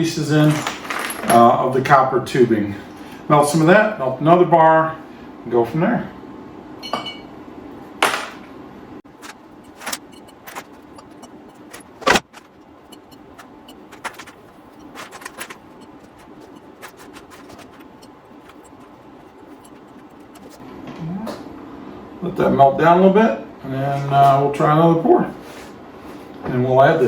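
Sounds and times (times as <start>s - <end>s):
steady hum: 6.4s - 20.9s
copper scraps clinking: 9.1s - 20.6s.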